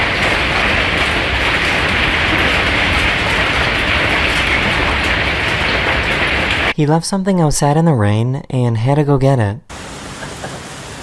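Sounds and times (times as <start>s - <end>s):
hailstones hammering a house: 0.0s - 6.8s.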